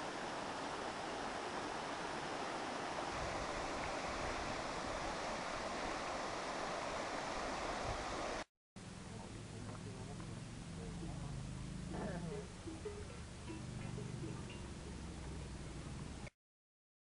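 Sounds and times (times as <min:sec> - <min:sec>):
water rushing: 0:00.0 - 0:08.5.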